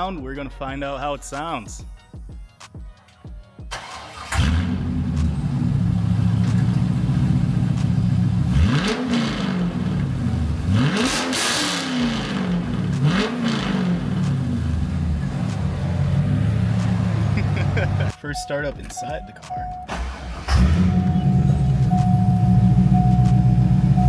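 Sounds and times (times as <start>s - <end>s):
car engine starting and revving: 3.7s - 18.2s, 19.6s - 24.0s.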